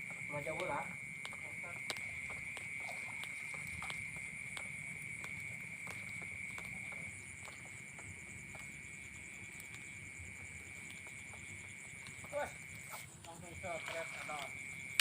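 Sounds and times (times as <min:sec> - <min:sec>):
night insect chorus: 0:00.0 - 0:15.0.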